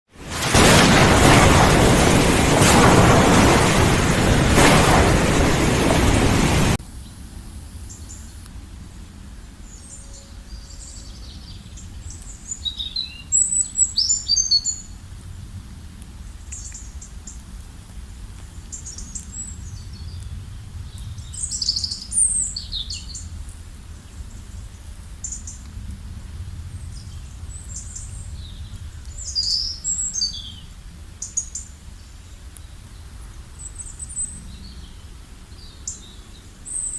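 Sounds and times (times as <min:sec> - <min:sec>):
loud rushing noise: 0:00.1 - 0:06.8.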